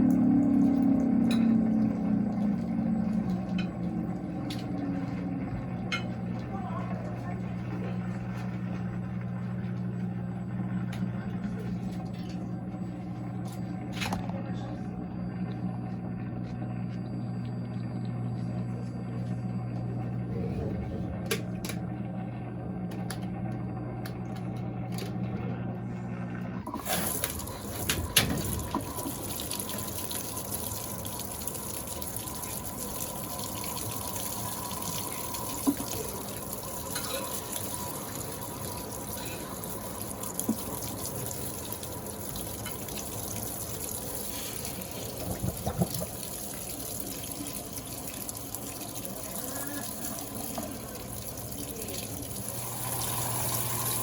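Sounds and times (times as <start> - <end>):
washing machine motor hum: 0.0 - 54.0
water rushing into tub: 26.7 - 54.0.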